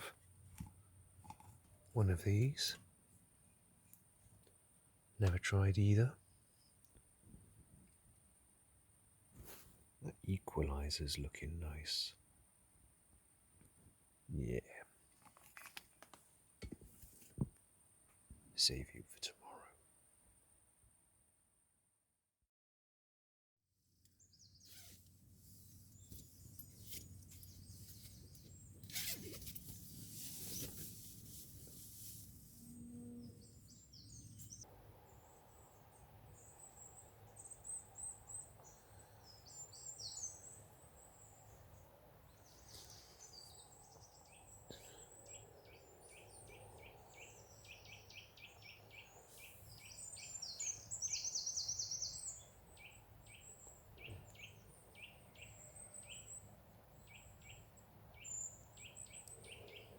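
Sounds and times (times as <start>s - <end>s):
rustling noise: 9.3s - 9.8s, 15.1s - 17.6s, 24.6s - 32.6s
small birds chirping: 24.0s - 31.8s, 32.6s - 59.9s.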